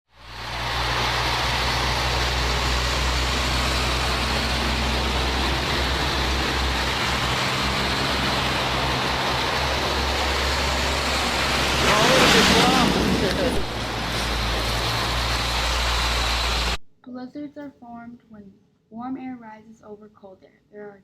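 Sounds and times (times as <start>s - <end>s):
low hum: 0.1s - 16.8s
steady rushing noise: 0.1s - 16.8s.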